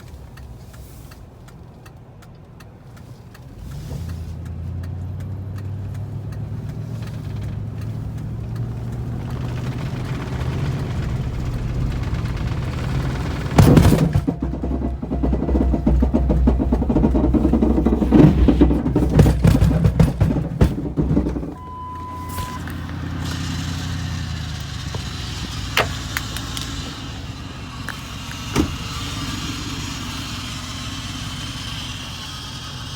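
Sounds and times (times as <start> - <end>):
car engine starting and revving: 0.0 - 32.9.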